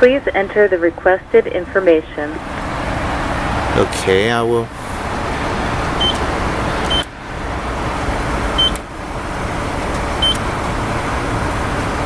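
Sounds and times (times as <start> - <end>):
car engine idling: 0.0 - 12.0
keypad beeps: 6.0 - 7.1, 8.6 - 8.8, 10.2 - 10.4.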